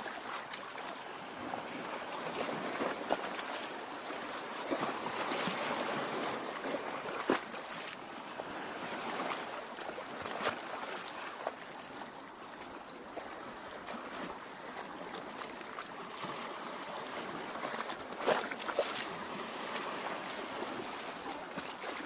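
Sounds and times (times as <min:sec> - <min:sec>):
lake water lapping at shore: 0:00.0 - 0:22.0
small water splashes: 0:08.9 - 0:22.0.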